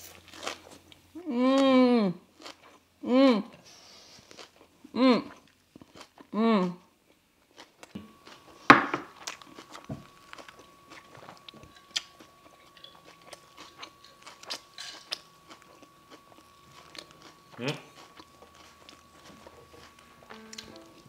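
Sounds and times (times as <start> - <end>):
faint steady hum: 0.0 - 21.0
chewing clicks and crunches: 9.2 - 20.7.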